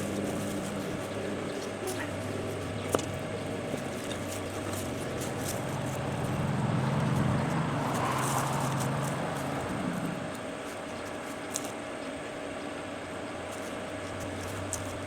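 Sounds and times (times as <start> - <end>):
passing vehicle motor rumble: 0.0 - 10.9.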